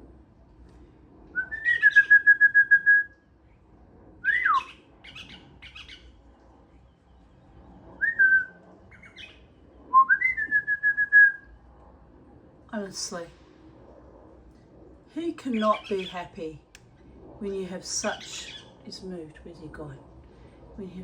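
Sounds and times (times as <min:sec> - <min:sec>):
bird whistling and trilling: 0:01.4 - 0:03.2, 0:04.2 - 0:06.0, 0:08.0 - 0:11.5.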